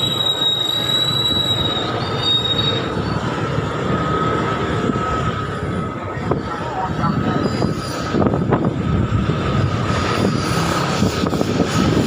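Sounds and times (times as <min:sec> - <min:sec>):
high-pitched squeals: 0:00.0 - 0:06.0
vehicle rumbling and rattling: 0:00.0 - 0:12.0.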